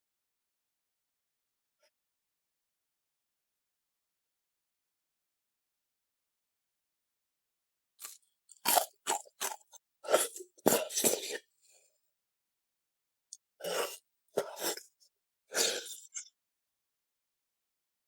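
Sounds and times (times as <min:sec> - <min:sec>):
crunchy bites and chewing: 0:08.0 - 0:11.4.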